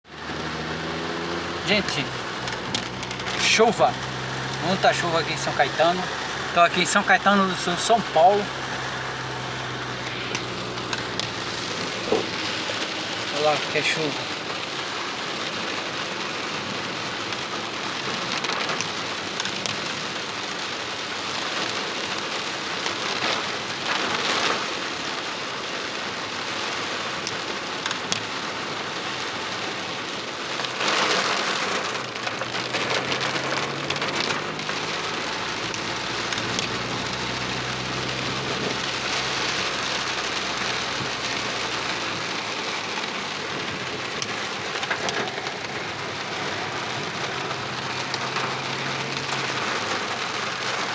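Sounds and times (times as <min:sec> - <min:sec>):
heavy rain pouring: 0:00.0 - 0:50.9
low engine hum: 0:00.1 - 0:14.7, 0:32.6 - 0:50.9.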